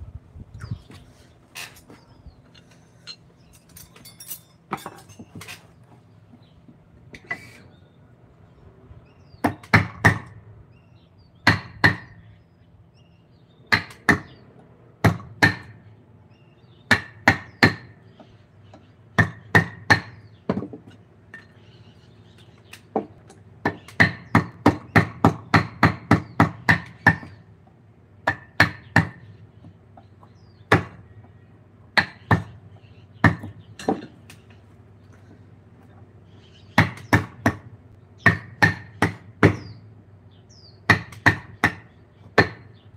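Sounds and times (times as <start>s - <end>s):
mallet striking chisel into wood: 38.2s - 39.7s, 40.9s - 42.7s.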